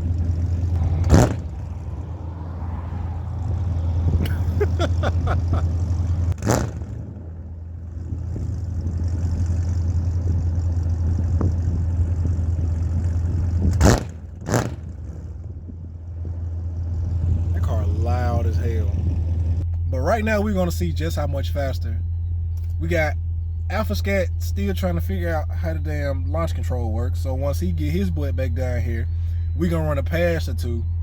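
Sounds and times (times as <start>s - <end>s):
sharp thumps: 0.0s - 4.4s, 5.6s - 9.0s, 13.6s - 15.0s
engine idling: 0.0s - 31.0s.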